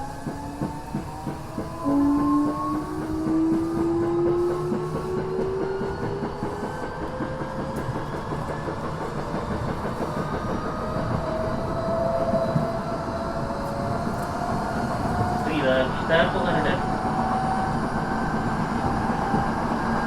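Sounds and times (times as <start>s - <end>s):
train motor whine rising in pitch: 0.0s - 8.0s
rail-joint clacks: 0.1s - 16.9s.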